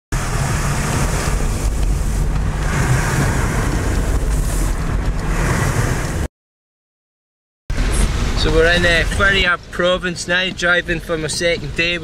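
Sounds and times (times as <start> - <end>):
pickup engine and road rumble: 0.1 - 6.3, 7.7 - 12.0
tyres and wind hiss: 0.2 - 6.3.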